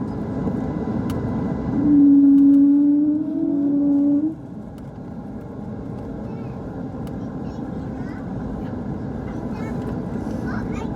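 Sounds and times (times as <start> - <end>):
airplane cabin noise: 0.0 - 10.9.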